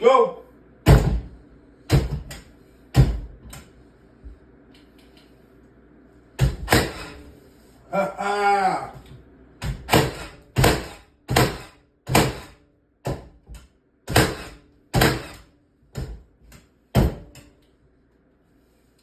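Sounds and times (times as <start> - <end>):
nail gun firing: 6.4 - 7.2, 9.7 - 12.6, 14.1 - 15.5.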